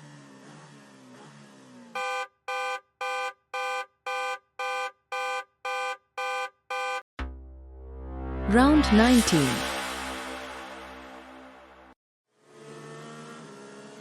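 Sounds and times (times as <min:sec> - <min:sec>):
low boom with rising sweep: 0:07.2 - 0:12.0.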